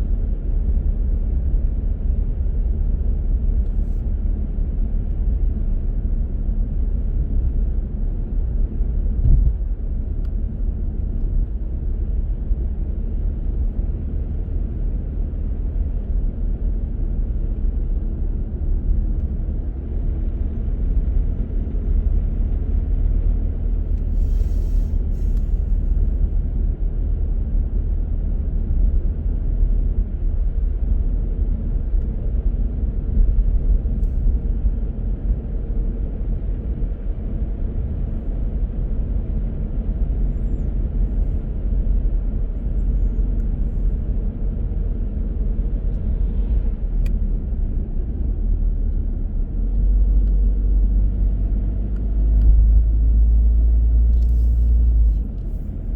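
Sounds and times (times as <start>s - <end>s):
car engine and tyres rumbling: 0.0s - 55.9s
brief hiss: 24.0s - 25.6s.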